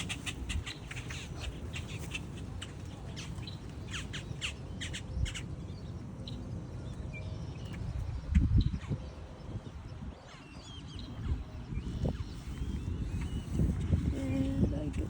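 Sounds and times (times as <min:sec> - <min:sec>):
birds chirping and squawking: 0:00.0 - 0:06.4, 0:07.4 - 0:15.0
steady low rumble: 0:10.8 - 0:15.0.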